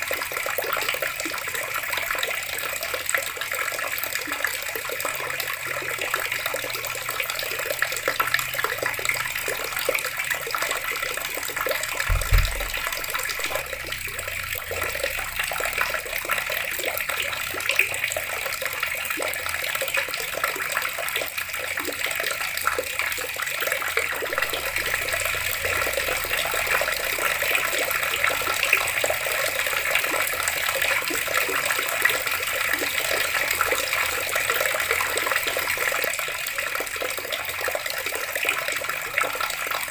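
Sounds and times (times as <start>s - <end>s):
tap water splashing: 7.8s - 16.2s, 24.2s - 28.9s
low thump: 12.0s - 15.0s.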